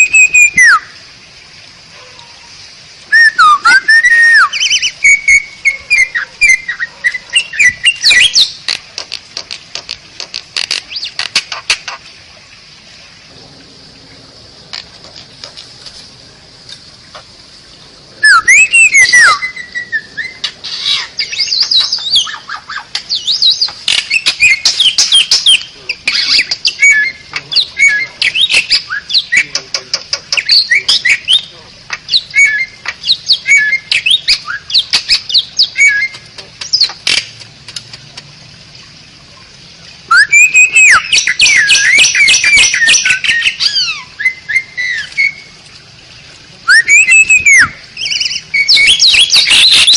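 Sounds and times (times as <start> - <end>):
starling singing: 0.0 - 0.9, 3.1 - 8.6, 18.2 - 37.2, 40.1 - 45.5, 46.7 - 49.9.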